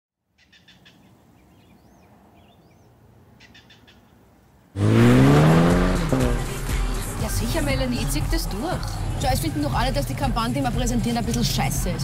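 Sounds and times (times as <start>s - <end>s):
birds chirping faintly: 0.2s - 4.6s
countryside ambience: 0.2s - 12.0s
loud music: 4.8s - 10.8s.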